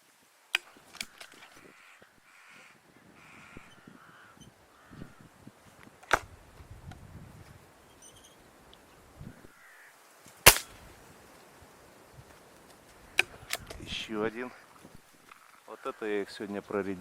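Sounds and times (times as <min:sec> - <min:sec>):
sharp clicks: 0:00.6 - 0:01.5, 0:13.2 - 0:13.8
crows cawing: 0:01.0 - 0:05.4, 0:09.3 - 0:10.0, 0:12.9 - 0:13.7, 0:14.4 - 0:16.3
air rifle shot: 0:10.4 - 0:10.8.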